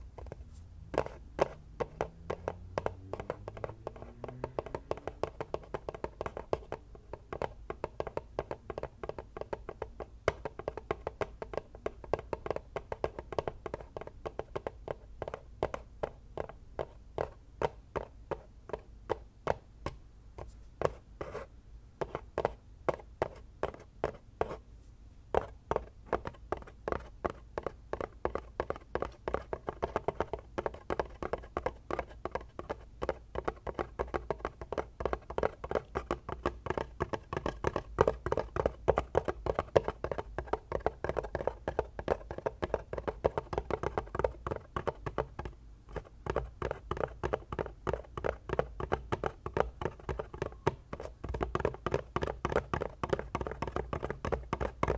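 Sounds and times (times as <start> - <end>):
fingers tapping on hard objects: 0.2 - 20.0, 25.3 - 54.9.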